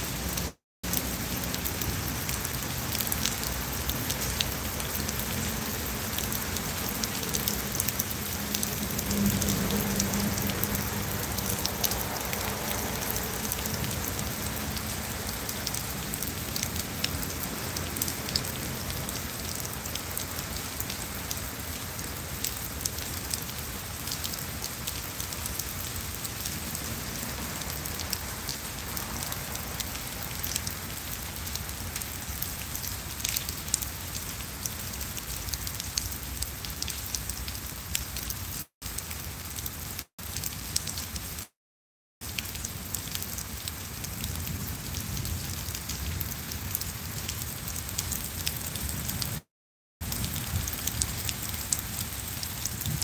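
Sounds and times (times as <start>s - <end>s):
rain on stone paving and shrubs: 0.0s - 41.6s, 42.2s - 53.0s
raindrop ticks: 0.8s - 26.5s, 27.6s - 39.1s.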